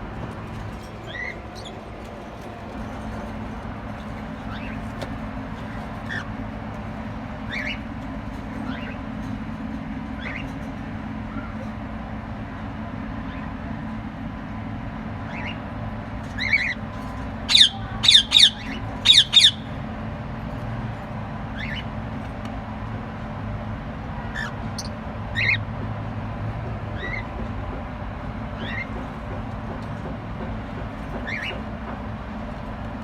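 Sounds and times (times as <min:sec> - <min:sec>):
steady low hum: 0:00.0 - 0:33.0
birds squawking: 0:00.6 - 0:09.2, 0:10.1 - 0:11.6, 0:15.3 - 0:15.7, 0:16.3 - 0:19.8, 0:21.5 - 0:22.0, 0:24.3 - 0:25.7, 0:26.9 - 0:27.4, 0:28.6 - 0:29.1, 0:31.1 - 0:31.7.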